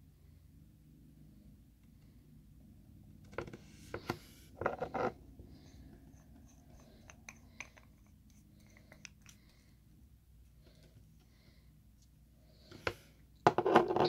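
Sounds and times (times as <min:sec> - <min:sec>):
bottle clicks and brush scraping: 0:06.0 - 0:09.6.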